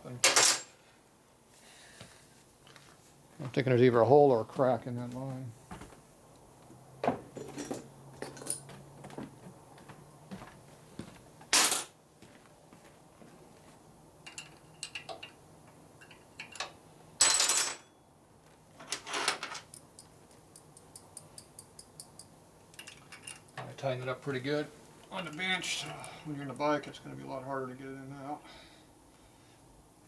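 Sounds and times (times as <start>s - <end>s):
metallic clinks and knocks: 7.3s - 8.8s, 14.2s - 15.4s, 18.9s - 23.7s.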